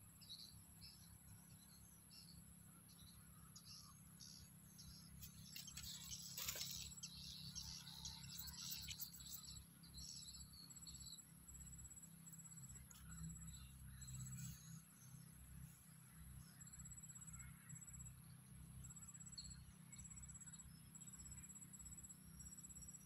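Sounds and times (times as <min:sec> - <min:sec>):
small birds chirping: 0:00.0 - 0:18.4
insects droning: 0:00.0 - 0:23.0
insect ticking trill: 0:02.9 - 0:14.6.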